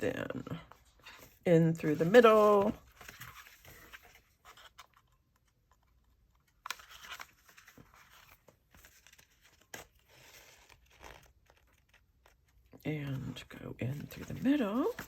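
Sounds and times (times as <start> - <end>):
rustling of paper and thread: 0.5 - 15.0.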